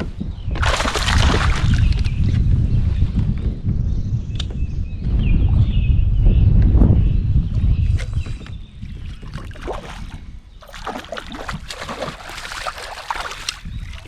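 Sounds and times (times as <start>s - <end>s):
wind buffeting microphone: 0.0s - 14.0s
water splashing around a kayak: 0.6s - 2.1s, 9.1s - 14.0s.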